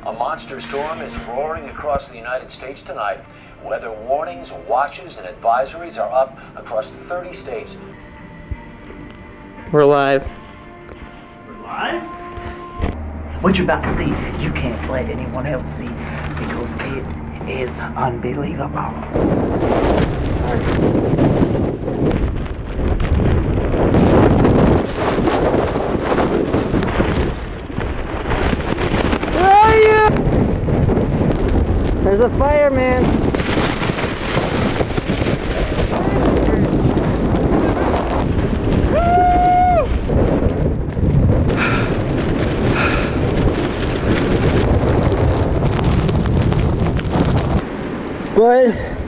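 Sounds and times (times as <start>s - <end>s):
wind buffeting microphone: 12.4s - 49.0s.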